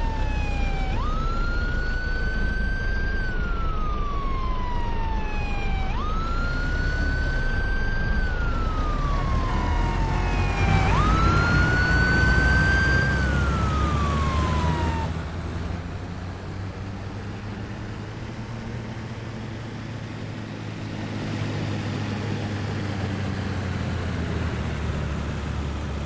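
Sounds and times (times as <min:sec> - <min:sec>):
emergency siren wailing: 0:00.0 - 0:15.9
low rumble of road noise: 0:00.0 - 0:26.0.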